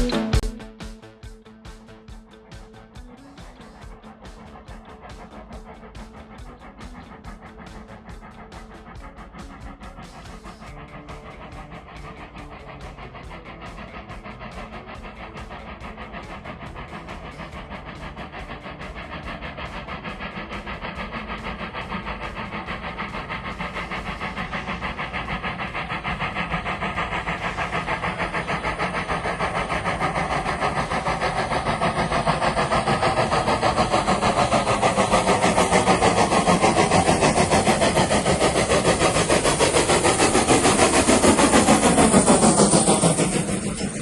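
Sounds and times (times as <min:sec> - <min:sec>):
steam locomotive passing: 0:00.0 - 0:44.0.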